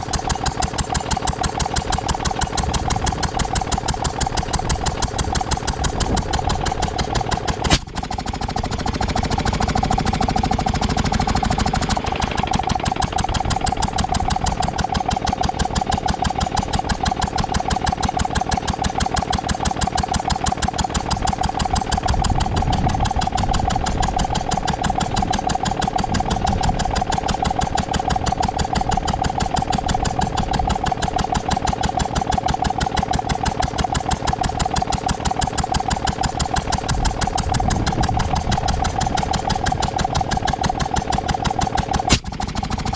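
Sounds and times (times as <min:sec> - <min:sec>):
air compressor running: 0:00.0 - 0:42.9
sharp knock: 0:07.6 - 0:08.0, 0:42.1 - 0:42.3.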